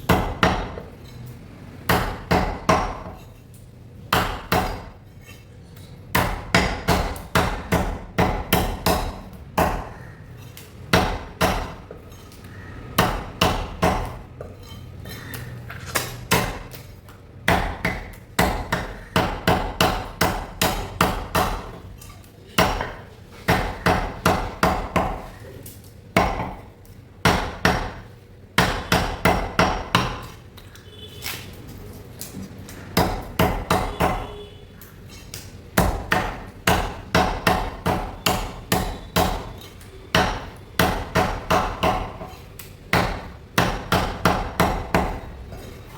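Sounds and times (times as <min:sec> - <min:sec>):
cleaver chopping chicken: 0:04.1 - 0:05.0, 0:06.2 - 0:10.2, 0:10.9 - 0:11.8, 0:12.9 - 0:14.2, 0:17.5 - 0:21.8, 0:22.6 - 0:25.4, 0:32.9 - 0:34.4, 0:35.3 - 0:45.3.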